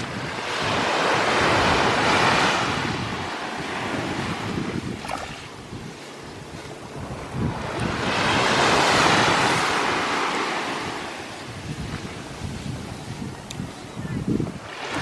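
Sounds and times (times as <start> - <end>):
wind rumbling on microphone: 0.0 - 15.0
sea wave washing onto beach: 14.4 - 15.0.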